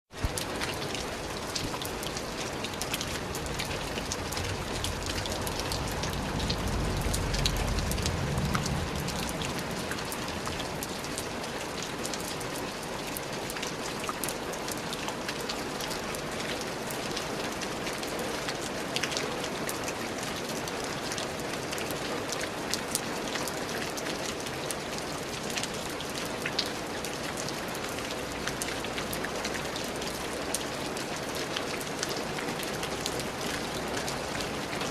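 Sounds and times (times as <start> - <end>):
rain pattering: 0.1 - 34.9
low rumble: 3.2 - 11.1.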